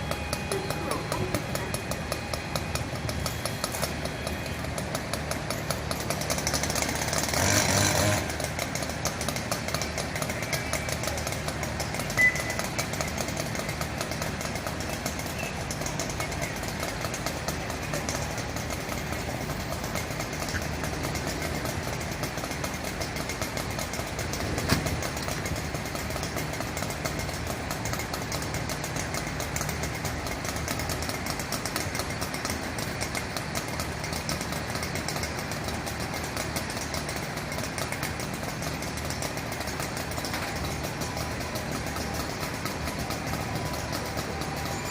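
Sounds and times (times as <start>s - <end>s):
truck engine idling: 0.0s - 44.9s.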